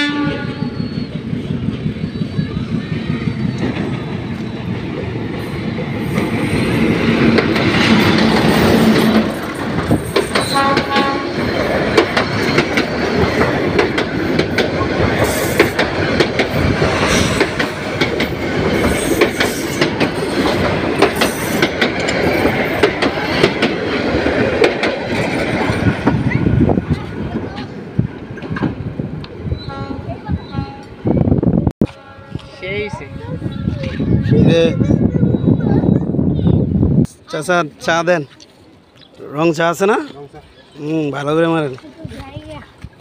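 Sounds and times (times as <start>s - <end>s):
train horn: 0.0s - 0.8s, 10.5s - 11.5s, 29.6s - 31.0s, 31.8s - 34.9s
train rumbling past: 0.0s - 43.0s
wheels clacking over rail joints: 3.4s - 29.4s.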